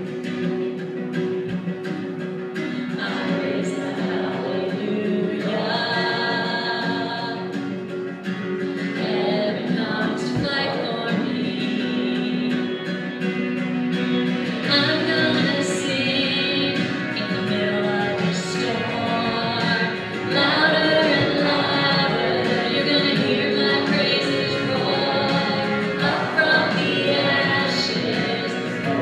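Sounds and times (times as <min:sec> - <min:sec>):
person singing worship song: 0:02.8 - 0:07.6, 0:08.9 - 0:12.8, 0:14.7 - 0:29.0.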